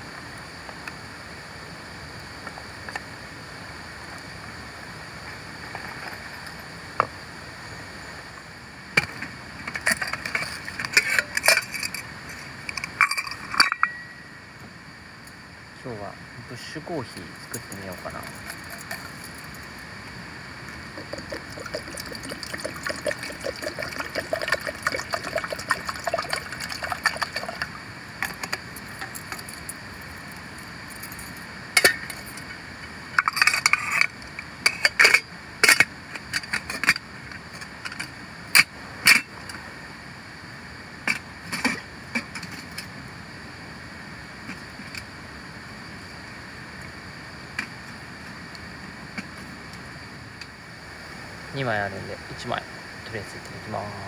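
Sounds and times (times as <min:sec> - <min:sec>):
water pouring into a pot: 0:17.4 - 0:19.8, 0:20.9 - 0:30.3
rushing water: 0:20.5 - 0:32.4.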